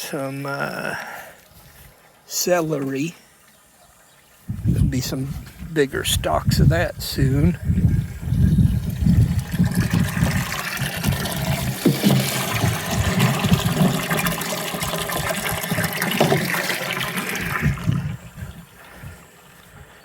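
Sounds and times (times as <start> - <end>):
water pouring from a jug: 7.7 - 19.0.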